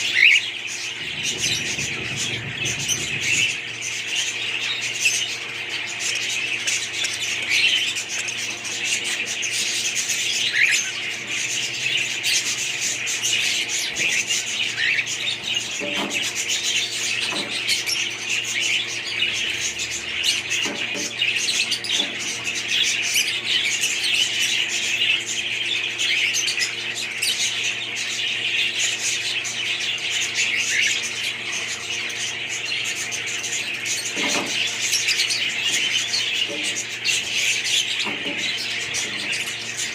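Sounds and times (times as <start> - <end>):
budgerigars chattering: 0.0 - 39.9
steady low hum: 0.0 - 39.9.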